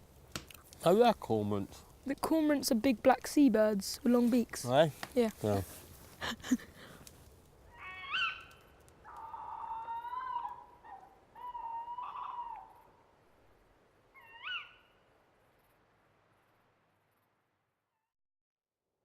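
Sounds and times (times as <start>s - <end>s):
owl calling: 7.7s - 13.0s, 14.1s - 15.0s.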